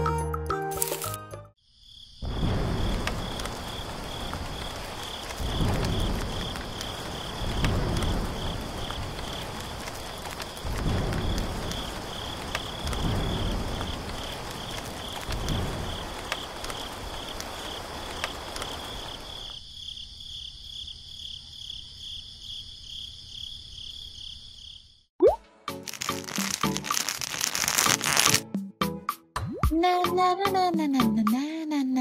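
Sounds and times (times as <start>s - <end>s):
crickets chirping: 1.6s - 25.1s, 25.9s - 28.4s
low thunder rumbles: 2.2s - 19.4s
rain: 2.2s - 19.6s, 25.8s - 28.4s.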